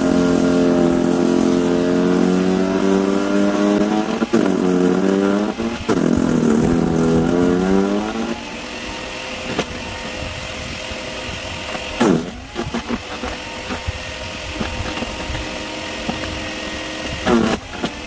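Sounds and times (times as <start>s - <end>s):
wood cracking in chipper: 0.0s - 8.6s
electric wood chipper running: 0.0s - 18.0s.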